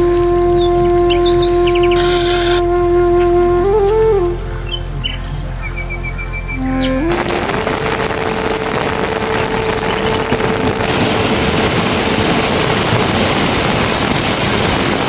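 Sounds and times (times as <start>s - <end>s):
rushing water: 7.0s - 15.0s.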